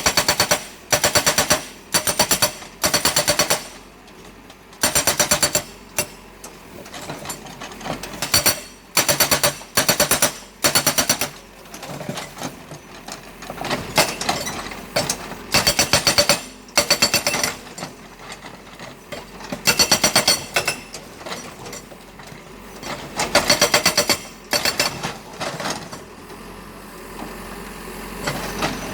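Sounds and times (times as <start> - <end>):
hydraulic breaker hammering: 0.0 - 3.8, 8.2 - 11.4, 15.1 - 17.7, 19.6 - 20.9.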